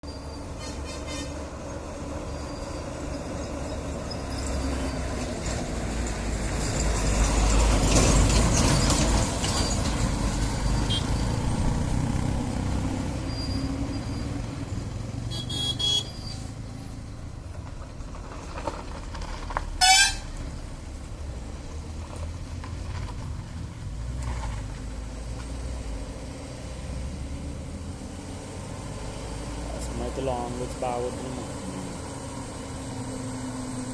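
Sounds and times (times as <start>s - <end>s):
truck engine and road noise: 0.0s - 33.9s
loud horn blast: 15.3s - 16.1s, 19.8s - 20.4s
horn toot: 15.3s - 16.4s, 19.8s - 20.3s.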